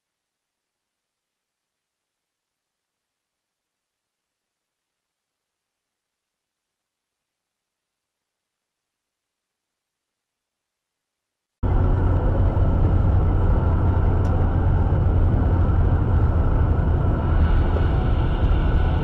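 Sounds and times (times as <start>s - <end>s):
vehicle engine and road noise: 11.6s - 19.0s.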